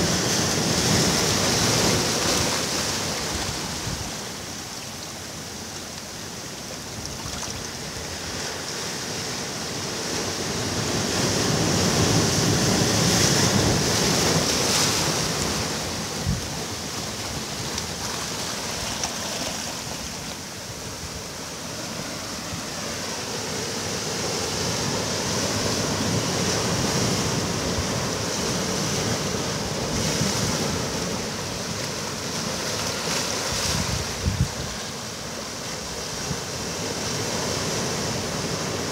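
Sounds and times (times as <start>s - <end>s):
sea waves washing onto beach: 0.0s - 38.9s
wind on microphone: 10.5s - 19.0s, 33.3s - 35.0s.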